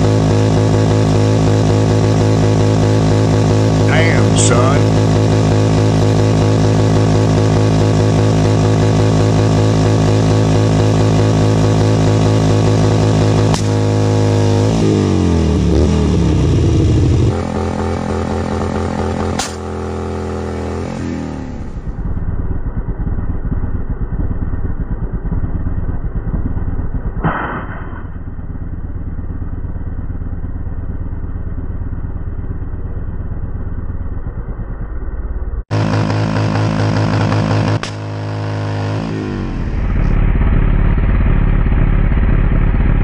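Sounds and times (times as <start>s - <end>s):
motorcycle engine revving: 0.0s - 43.0s
sharp crack: 13.5s - 13.9s, 19.2s - 19.9s, 27.2s - 28.2s, 37.6s - 38.2s.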